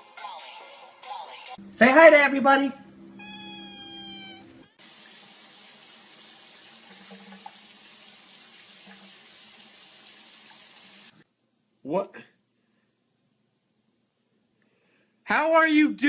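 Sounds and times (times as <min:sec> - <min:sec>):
cat meowing: 0:03.1 - 0:04.8
tap water running: 0:04.8 - 0:11.2.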